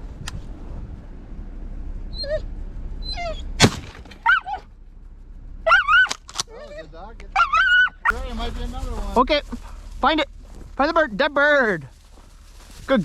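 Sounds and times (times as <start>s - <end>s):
wind rumble: 0.0s - 13.0s
dog whimpering: 2.1s - 3.5s, 4.2s - 4.6s, 5.6s - 8.1s.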